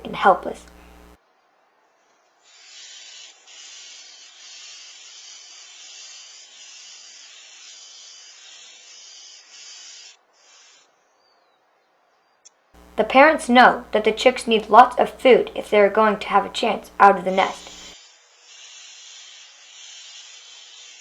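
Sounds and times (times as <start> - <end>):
steady hiss: 0.0 - 1.2, 12.8 - 21.0.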